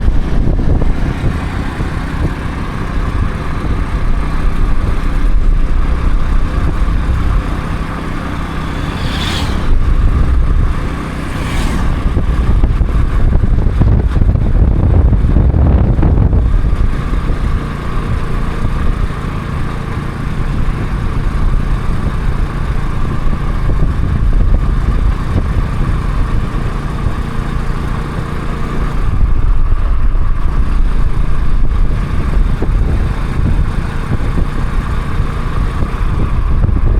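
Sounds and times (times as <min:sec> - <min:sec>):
vehicle engine running: 0:00.0 - 0:36.9
brief sweeping sounds: 0:08.2 - 0:12.5.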